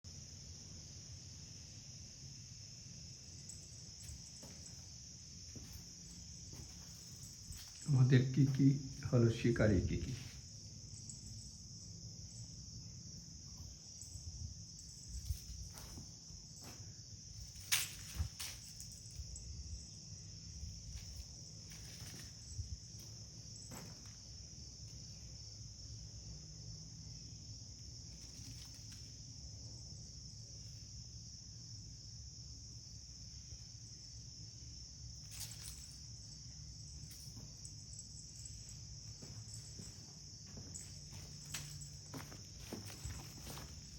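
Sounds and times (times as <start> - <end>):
insects chirring: 0.0 - 43.9
faint knocks or steps: 38.4 - 43.9.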